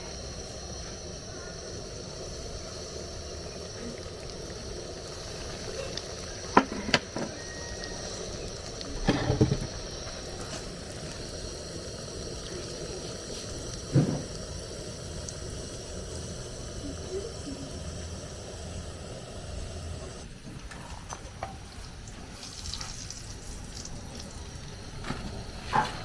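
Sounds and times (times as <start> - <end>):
pot sizzling and bubbling: 0.0 - 26.0
utensil knocking against pot: 6.5 - 7.4.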